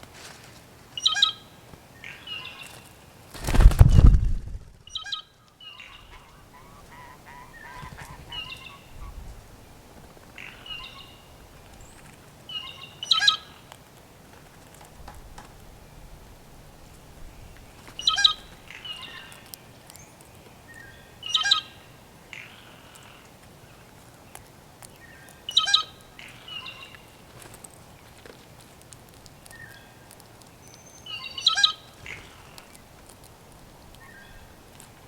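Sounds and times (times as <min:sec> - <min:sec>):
blue jays calling harshly: 0:05.8 - 0:09.1.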